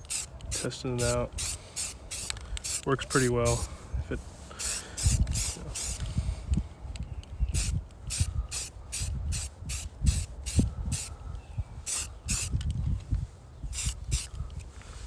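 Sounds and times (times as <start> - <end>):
spray can hissing: 0.0 - 2.9, 4.5 - 6.0, 7.6 - 11.1, 11.8 - 12.6, 13.7 - 14.3.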